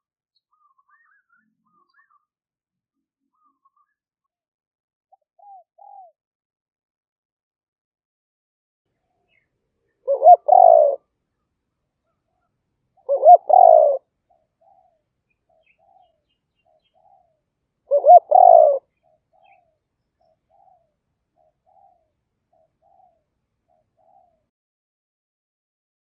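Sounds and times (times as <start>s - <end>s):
dove cooing: 5.4s - 6.2s, 10.0s - 11.0s, 13.0s - 14.9s, 17.9s - 19.6s.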